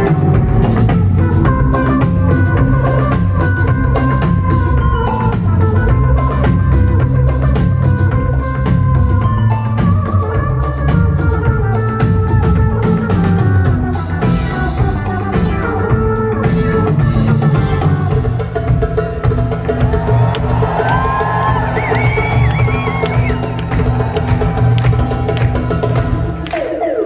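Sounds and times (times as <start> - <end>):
guitar or keys melody: 0.0 - 18.5
bass: 0.0 - 26.8
drum kit beat: 0.0 - 27.0.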